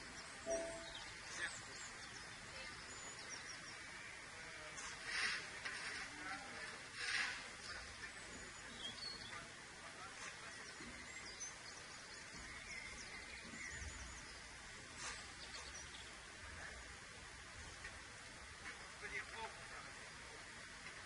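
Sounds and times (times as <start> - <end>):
high bird chirps and trills: 0.0 - 3.9, 10.6 - 16.2
steady background noise: 0.0 - 21.0.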